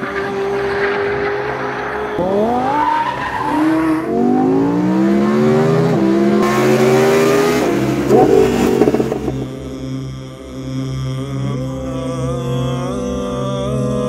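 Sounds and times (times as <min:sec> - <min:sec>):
sports car accelerating hard: 0:00.0 - 0:09.7.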